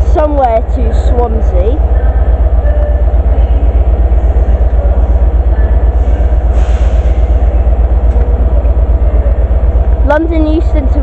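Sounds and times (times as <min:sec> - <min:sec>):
diesel locomotive engine throbbing: 0:00.0 - 0:11.0.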